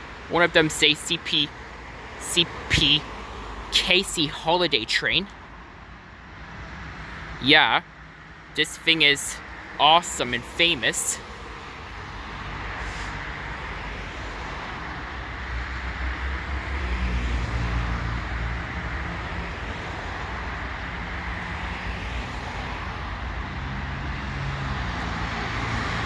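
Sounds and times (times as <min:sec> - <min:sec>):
rumble of rail cars: 0:00.0 - 0:00.4, 0:11.2 - 0:26.0.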